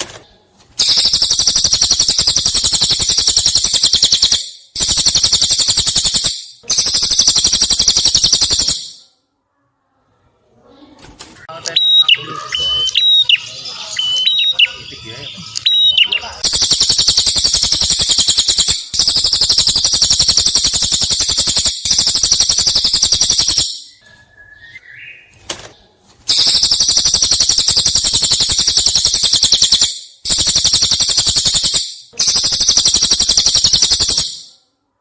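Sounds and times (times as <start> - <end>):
bird singing fast rattling trills: 0.8 - 9.0, 12.7 - 24.0, 26.3 - 34.5.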